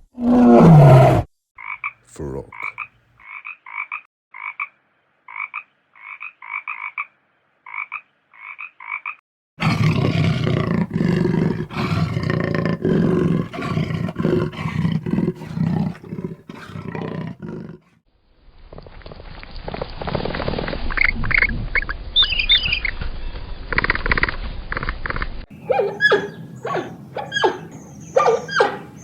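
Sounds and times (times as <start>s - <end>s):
frog croaking: 1.6s - 9.2s
low rough animal call: 9.6s - 17.9s.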